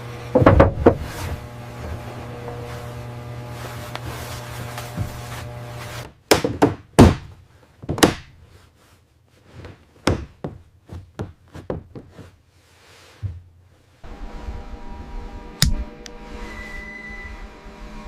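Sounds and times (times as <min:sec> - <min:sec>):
steady hum: 0:00.0 - 0:06.1, 0:14.0 - 0:18.0.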